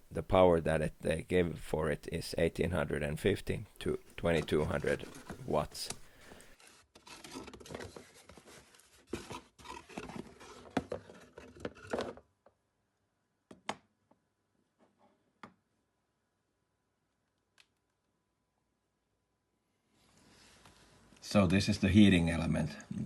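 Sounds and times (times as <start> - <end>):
objects rubbing and scraping by hand: 3.4 - 11.9.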